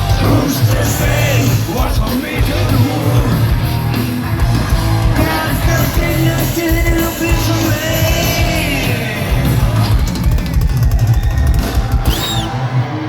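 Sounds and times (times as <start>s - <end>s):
metal band playing live: 0.0s - 13.0s
person singing: 0.1s - 3.6s, 5.1s - 9.9s.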